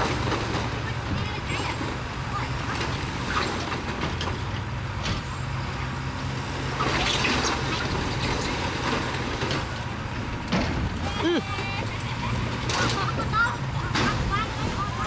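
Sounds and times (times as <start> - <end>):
bulldozer diesel engine running: 0.0 - 15.0.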